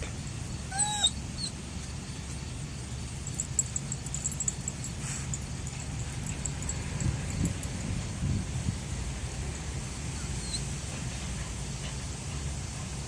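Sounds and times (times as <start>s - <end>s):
steady low rumble: 0.0s - 13.0s
dog whining: 0.7s - 1.6s, 9.8s - 10.6s.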